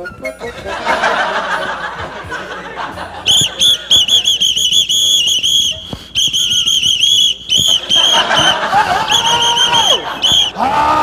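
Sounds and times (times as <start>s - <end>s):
pea whistle toots: 0.0s - 0.6s, 3.2s - 10.6s.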